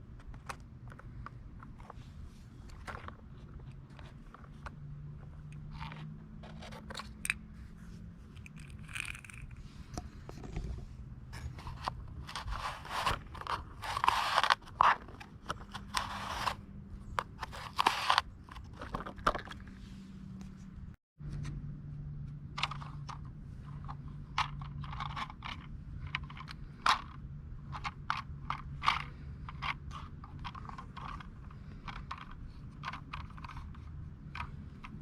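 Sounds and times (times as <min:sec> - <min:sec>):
small hard parts clicking: 0:08.4 - 0:10.6, 0:22.6 - 0:35.0.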